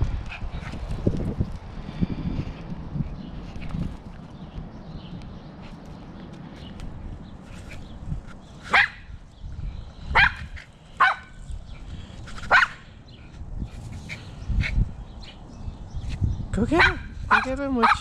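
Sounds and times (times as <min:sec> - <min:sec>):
dog barking: 0:08.7 - 0:09.0, 0:10.1 - 0:10.4, 0:11.0 - 0:11.3, 0:12.5 - 0:12.8, 0:16.8 - 0:18.0.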